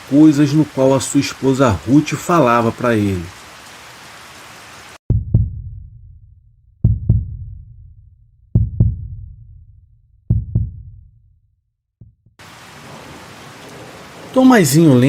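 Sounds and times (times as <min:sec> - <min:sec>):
heartbeat double thumps: 0:05.1 - 0:11.3, 0:12.0 - 0:12.4.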